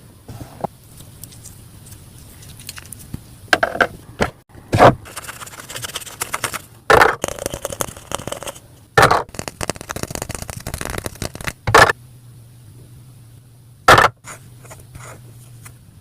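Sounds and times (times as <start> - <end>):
plastic toy pieces clicking and rattling: 5.1 - 8.6, 9.2 - 11.6.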